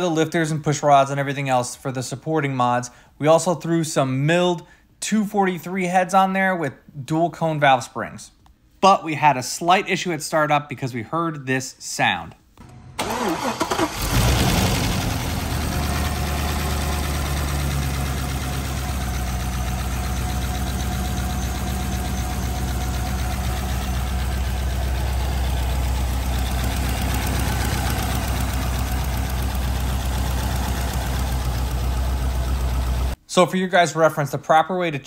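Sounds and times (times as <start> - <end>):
car engine idling: 12.6 - 33.2
rapid valvetrain ticking: 16.8 - 33.1.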